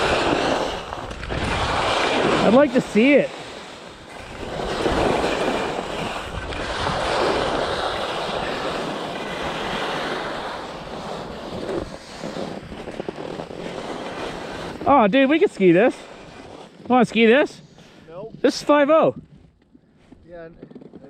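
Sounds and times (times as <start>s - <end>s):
wind buffeting microphone: 0.0s - 15.5s
skis scraping over hard snow: 0.0s - 19.2s, 20.0s - 21.0s.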